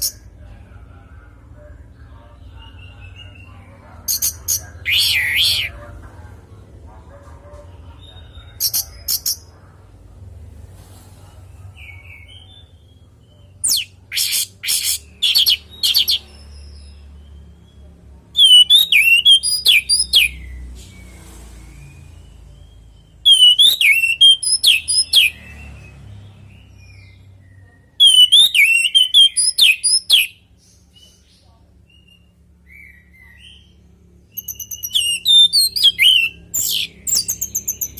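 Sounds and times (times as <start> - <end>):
bird harsh scratchy notes: 4.1 - 5.7.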